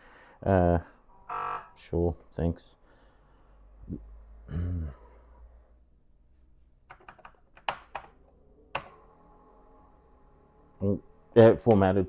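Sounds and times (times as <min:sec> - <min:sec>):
keyboard keys clicking: 0:06.9 - 0:08.1.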